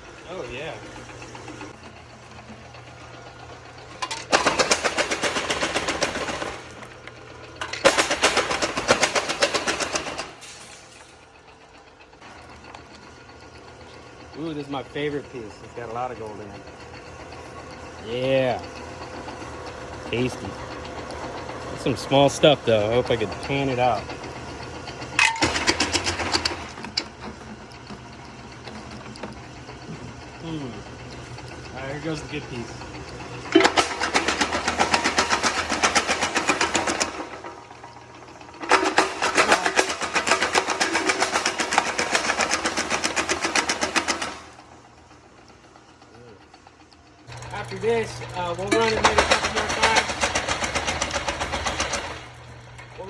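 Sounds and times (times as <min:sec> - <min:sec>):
jaw crusher humming: 0:00.0 - 0:53.0
rock cracking in crusher: 0:04.1 - 0:11.2.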